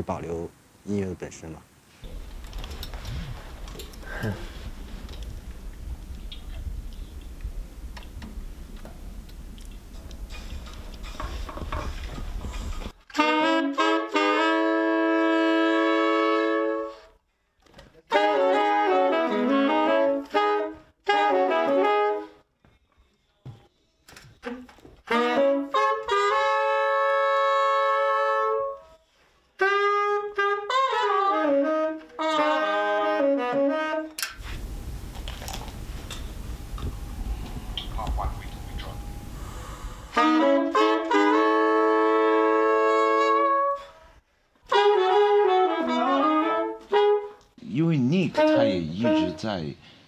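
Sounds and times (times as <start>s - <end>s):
steady hiss: 0.0s - 13.0s, 34.2s - 40.5s
solo wind instrument playing: 13.1s - 17.2s, 18.1s - 22.4s, 24.4s - 44.0s, 44.6s - 49.5s.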